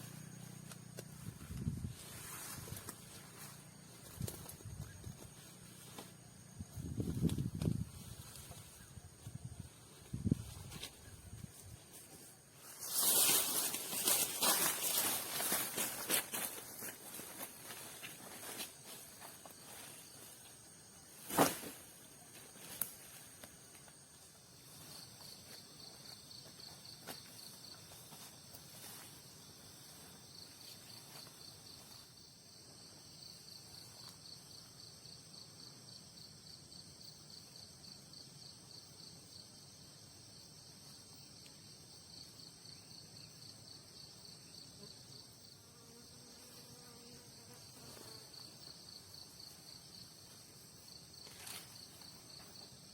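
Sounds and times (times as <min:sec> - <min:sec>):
insects chirping trill: 0:00.0 - 0:52.9
high-pitched insect buzz: 0:40.3 - 0:52.9.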